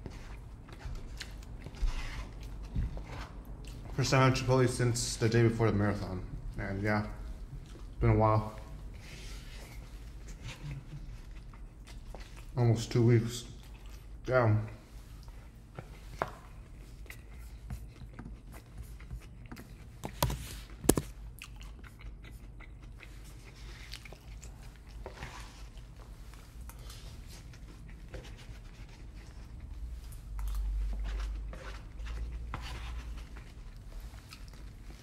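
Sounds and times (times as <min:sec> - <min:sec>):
person chewing: 0:09.7 - 0:12.6, 0:13.5 - 0:14.2, 0:15.1 - 0:28.1, 0:28.9 - 0:35.0.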